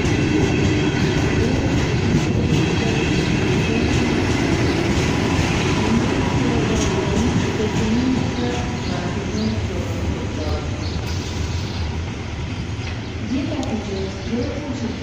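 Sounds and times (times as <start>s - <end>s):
train wheels running on track: 0.0s - 15.0s.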